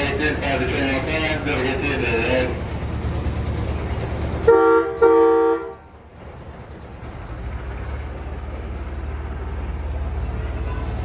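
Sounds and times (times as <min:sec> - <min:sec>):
low rumble of train running: 0:00.0 - 0:11.0
train horn toots: 0:04.4 - 0:05.9.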